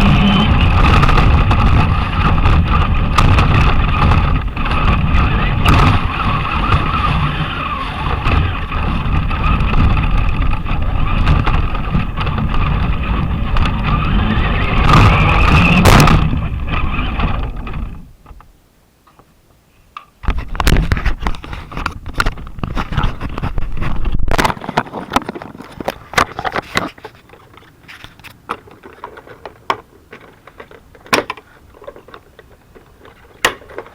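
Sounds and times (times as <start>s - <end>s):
electric motor whining: 0.0s - 18.2s
wheels rattling and scraping: 0.0s - 19.3s, 20.0s - 33.9s.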